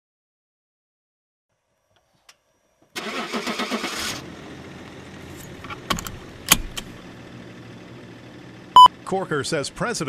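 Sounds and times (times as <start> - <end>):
starter cranking engine: 3.0 - 4.2
engine idling: 3.0 - 10.0
ignition key clicks: 5.5 - 7.0.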